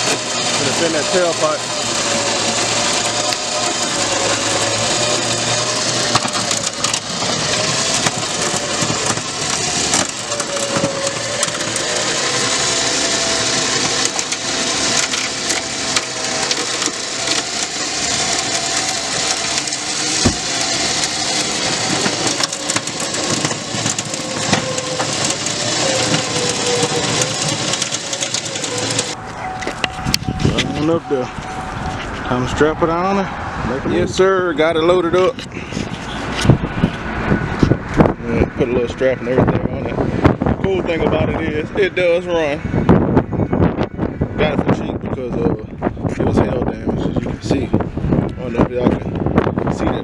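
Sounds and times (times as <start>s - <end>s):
heavy crackling noise: 0.0s - 32.6s
electric winch whining: 0.0s - 50.0s.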